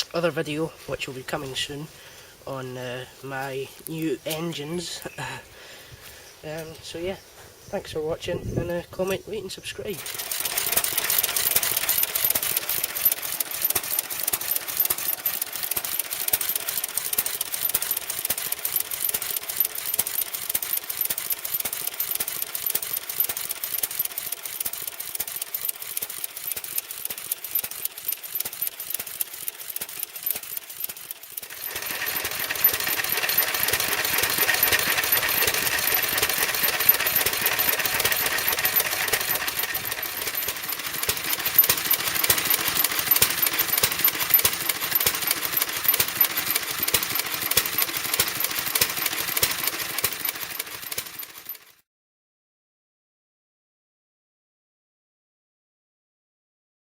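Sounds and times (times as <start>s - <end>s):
machine clattering rapidly: 10.0s - 51.8s.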